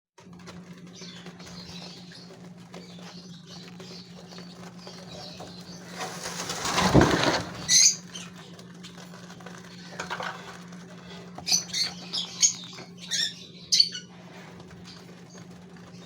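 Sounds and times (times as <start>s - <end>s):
rushing wing flutter: 5.8s - 7.9s
finches chirping: 11.4s - 14.1s.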